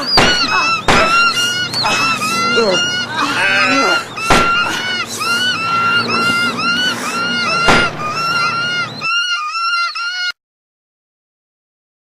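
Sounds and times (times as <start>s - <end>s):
birds screeching: 0.0s - 10.4s
loud sharp bang: 4.3s - 4.6s, 7.7s - 8.1s.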